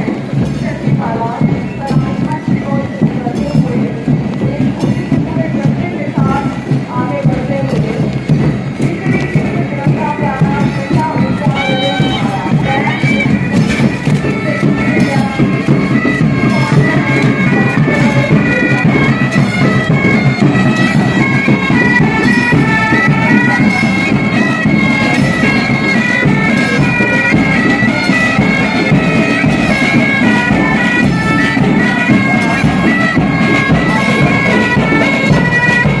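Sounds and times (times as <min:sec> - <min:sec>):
bagpipes playing marching tune: 0:00.0 - 0:36.0.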